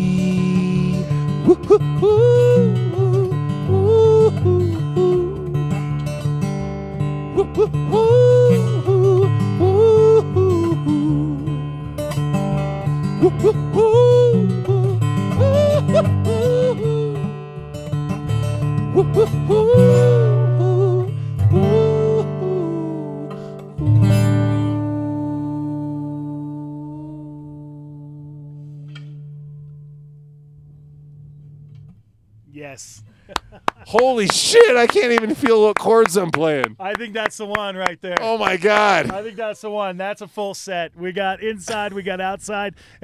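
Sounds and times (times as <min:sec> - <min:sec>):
acoustic guitar strumming: 0:00.0 - 0:25.4
person singing wordless melody: 0:18.9 - 0:23.5, 0:25.0 - 0:28.4, 0:34.1 - 0:36.8, 0:38.2 - 0:39.2.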